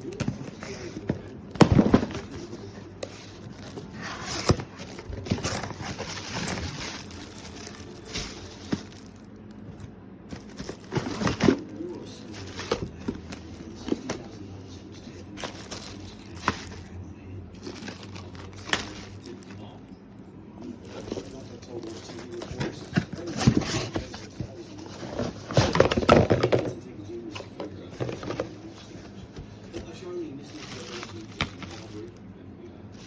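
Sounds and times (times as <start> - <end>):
crinkling and rustling: 0.0 - 17.0, 17.6 - 19.9, 20.6 - 32.2
faint voices: 0.0 - 33.0.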